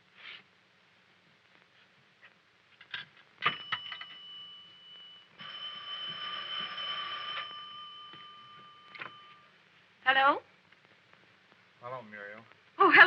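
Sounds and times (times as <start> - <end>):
electric telephone bell ringing: 3.4 - 9.5.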